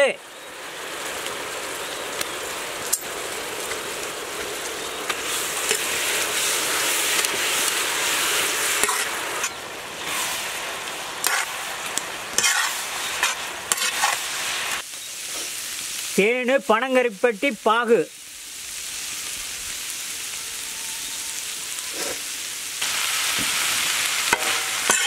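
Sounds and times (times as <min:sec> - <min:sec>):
prawns sizzling in a wok: 0:00.0 - 0:25.0
metal ladle scraping a wok: 0:05.1 - 0:10.6, 0:11.2 - 0:11.7, 0:12.3 - 0:14.6, 0:21.9 - 0:22.2, 0:24.3 - 0:25.0.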